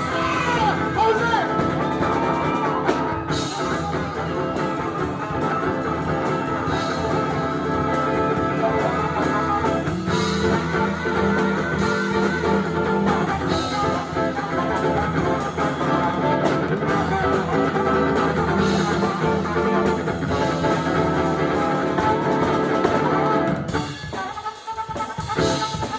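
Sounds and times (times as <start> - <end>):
electric guitar: 0.0 - 25.9
funk band playing: 0.0 - 25.9.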